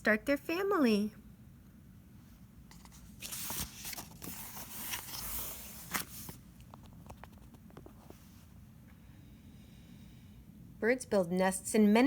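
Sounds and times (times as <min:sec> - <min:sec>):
paper page turning: 0:02.7 - 0:08.2.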